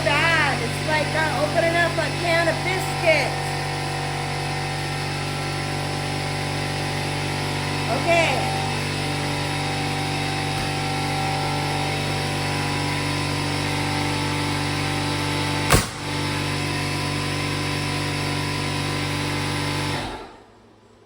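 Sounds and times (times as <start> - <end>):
air compressor running: 0.0 - 20.6
sharp bang: 15.7 - 16.1.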